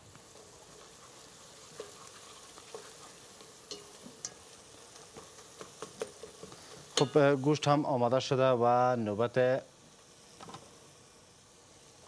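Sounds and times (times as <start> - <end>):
meat sizzling in a pot: 0.0 - 12.0
spoon clicking against pot: 3.7 - 4.4.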